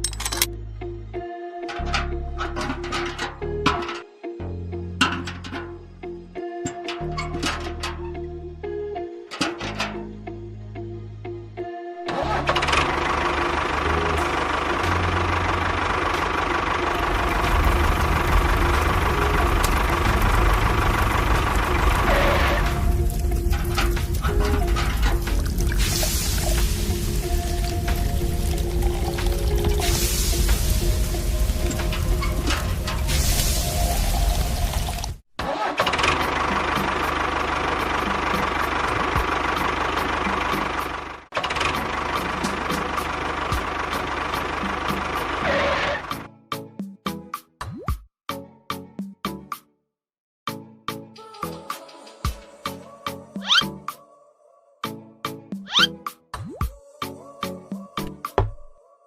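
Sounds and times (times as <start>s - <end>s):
small tractor engine running: 12.1s - 33.1s, 34.4s - 46.3s.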